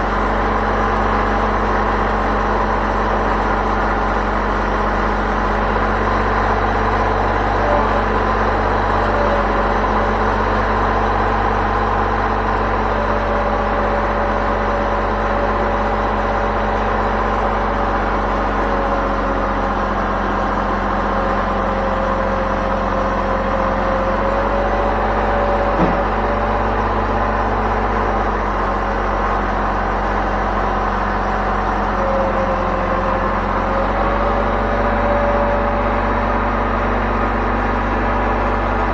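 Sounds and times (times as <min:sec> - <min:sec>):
engine running steadily: 0:00.0 - 0:38.9
brief knock: 0:25.8 - 0:26.2.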